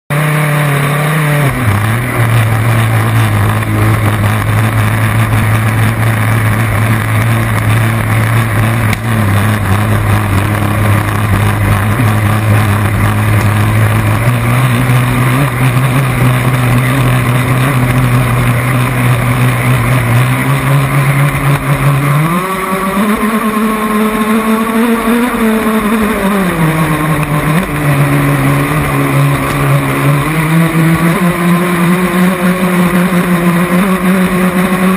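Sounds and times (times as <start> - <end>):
small boat engine running: 0.1 - 34.9.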